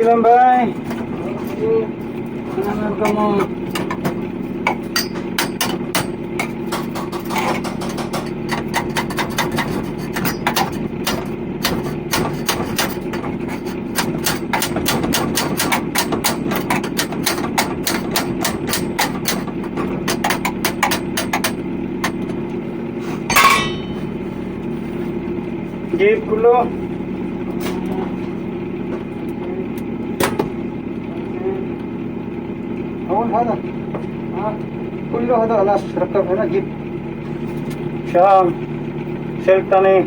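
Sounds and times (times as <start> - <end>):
steady engine hum: 0.0 - 40.0
rapid metal taps: 2.6 - 22.5.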